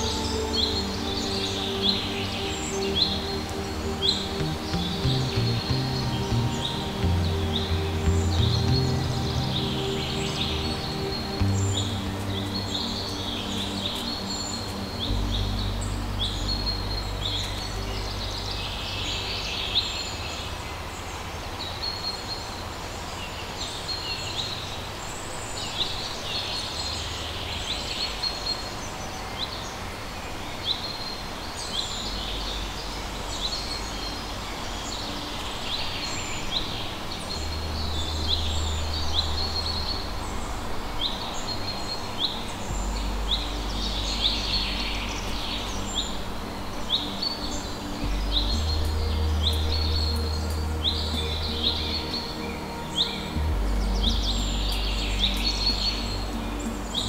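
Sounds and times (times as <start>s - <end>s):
low rumble: 0.0s - 20.9s, 36.9s - 57.0s.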